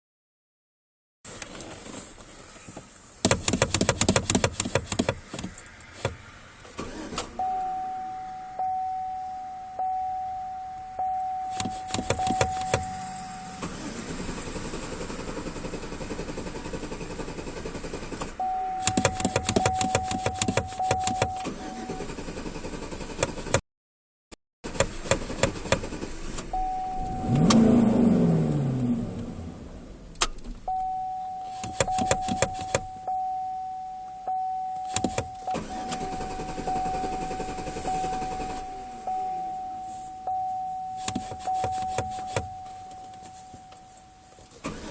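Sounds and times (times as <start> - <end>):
car engine cranking: 1.3 - 8.8, 9.8 - 23.6, 24.6 - 33.2, 34.1 - 44.9
dashboard warning chime: 6.9 - 14.1, 18.4 - 22.2, 26.5 - 29.8, 30.6 - 44.9.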